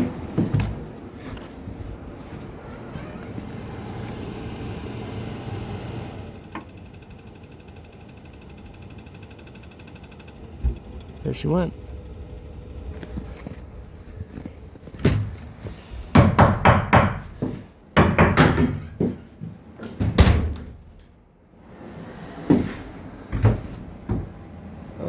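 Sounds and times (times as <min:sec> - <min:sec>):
furnace humming: 0:00.0 - 0:25.0
loud knocks and thumps: 0:16.1 - 0:17.3.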